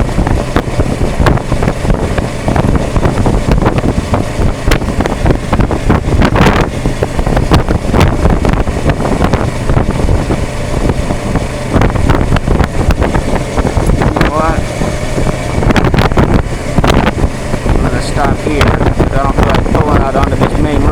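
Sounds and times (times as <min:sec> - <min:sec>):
motorcycle engine running: 0:00.0 - 0:20.9
wind buffeting microphone: 0:00.0 - 0:20.9.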